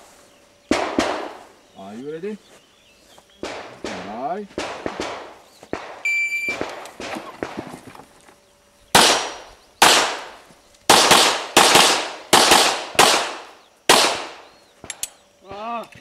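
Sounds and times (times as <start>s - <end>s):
handgun shots: 0.7s - 1.4s, 3.4s - 7.6s, 9.0s - 10.3s, 10.9s - 15.0s
shot timer beep: 6.1s - 6.6s.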